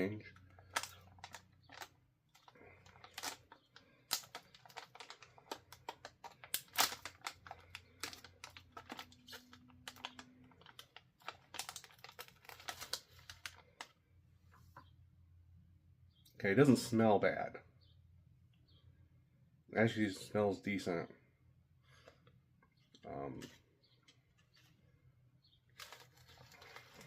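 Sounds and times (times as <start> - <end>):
plastic packaging crackling: 0.0 - 14.0, 25.6 - 27.0.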